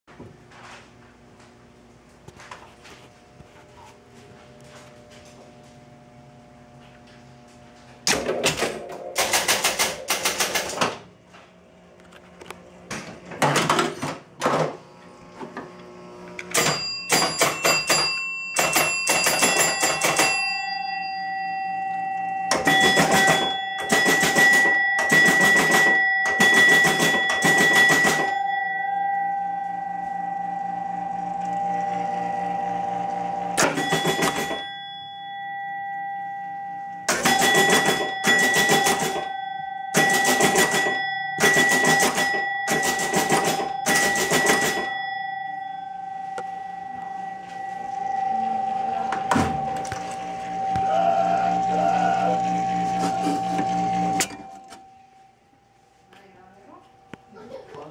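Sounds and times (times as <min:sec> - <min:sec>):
pinball relays clicking rapidly: 0:08.1 - 0:11.0, 0:16.5 - 0:20.6, 0:22.5 - 0:28.4, 0:33.6 - 0:34.7, 0:37.1 - 0:39.3, 0:39.9 - 0:45.0
chime-like ringing tones: 0:16.5 - 0:32.4, 0:33.6 - 0:57.9.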